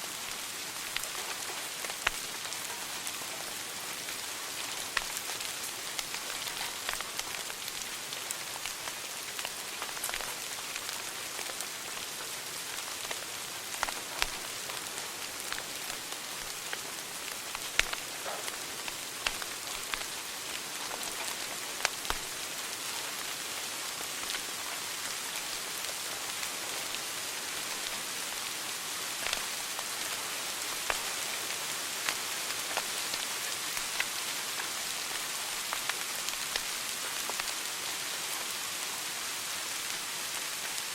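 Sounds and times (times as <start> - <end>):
wood fire crackling and popping: 0.2 - 38.5.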